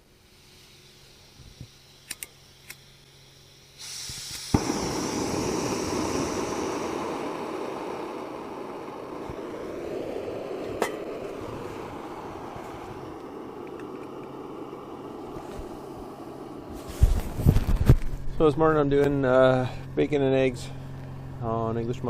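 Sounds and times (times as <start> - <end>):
fuel hissing: 0.0 - 22.0
stove igniter click: 2.0 - 2.8
burner rushing: 3.8 - 21.5.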